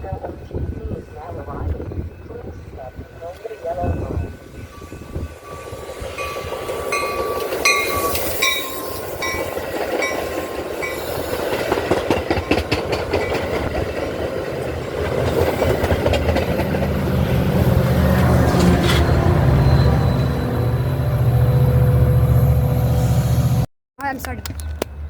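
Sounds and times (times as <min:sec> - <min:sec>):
crossing bell dinging: 0:03.2 - 0:11.2, 0:17.5 - 0:22.9
train wheels clattering: 0:06.0 - 0:17.2.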